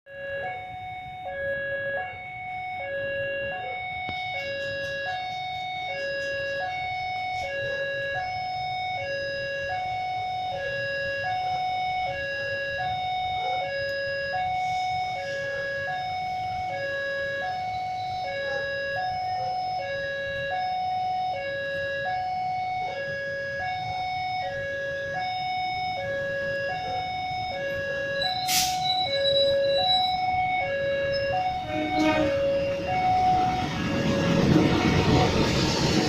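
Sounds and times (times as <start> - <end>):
two-tone electronic alarm: 0.1 - 36.0
low rumble: 31.2 - 36.0.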